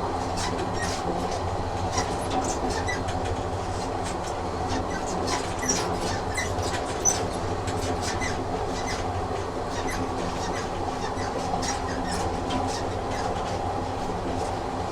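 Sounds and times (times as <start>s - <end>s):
train rumbling along rails: 0.0s - 14.9s
brief squeaks: 4.7s - 7.2s.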